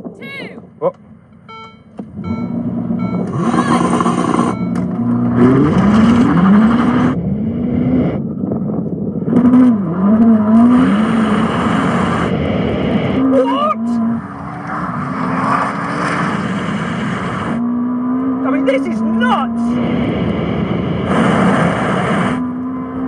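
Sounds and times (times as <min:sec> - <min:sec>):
rushing wind: 0:00.0 - 0:00.8, 0:02.0 - 0:23.0
sports car engine accelerating: 0:00.9 - 0:23.0
short beeps: 0:01.3 - 0:05.6.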